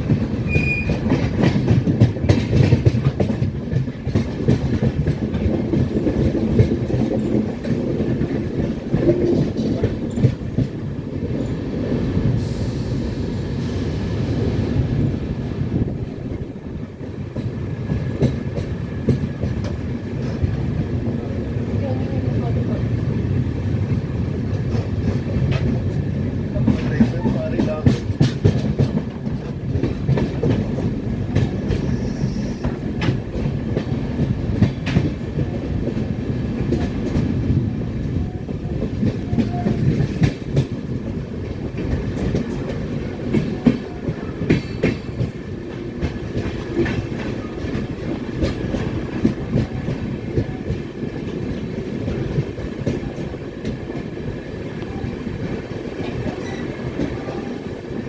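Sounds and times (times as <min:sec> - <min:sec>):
wheels clacking over rail joints: 0:00.0 - 0:11.5, 0:24.4 - 0:54.2
train wheels rumbling on track: 0:00.0 - 0:58.0.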